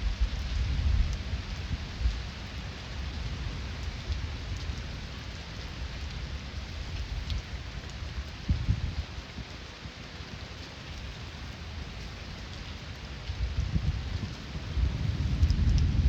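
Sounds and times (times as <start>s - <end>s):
heavy rain falling: 0.0s - 16.0s
distant thunder rumble: 13.6s - 16.0s.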